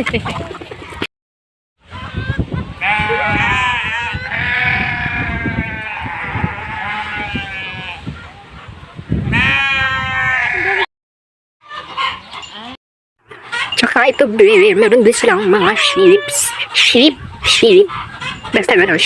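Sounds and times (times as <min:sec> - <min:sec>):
sheep bleating: 0:02.8 - 0:08.0, 0:09.4 - 0:10.9, 0:15.2 - 0:16.8.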